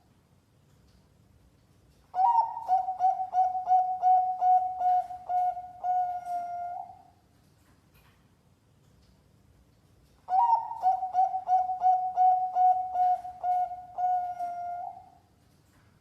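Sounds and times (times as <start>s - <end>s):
dove cooing: 2.2s - 7.1s, 10.3s - 15.2s.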